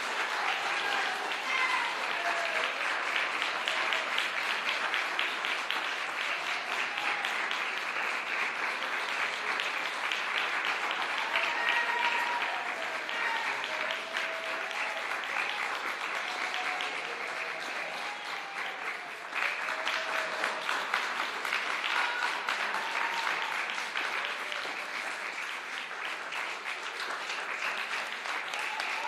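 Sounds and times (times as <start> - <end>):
audience applauding: 0.0 - 29.0
faint voices in crowd: 0.0 - 29.0.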